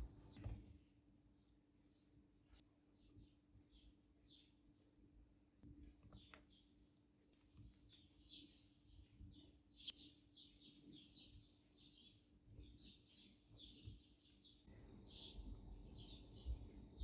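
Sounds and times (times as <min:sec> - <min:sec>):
small birds chirping: 0:00.0 - 0:17.0
soft low rumble: 0:14.7 - 0:17.0.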